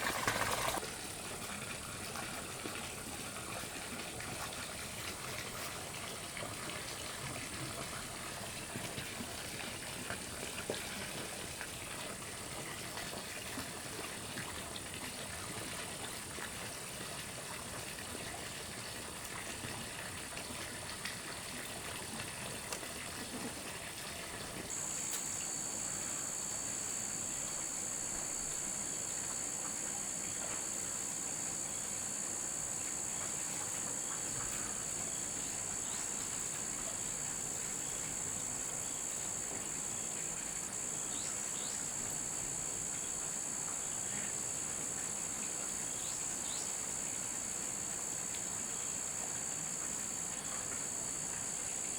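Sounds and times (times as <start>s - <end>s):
insects chirping: 0.0s - 0.8s, 20.2s - 51.9s
insect drone: 0.0s - 51.9s.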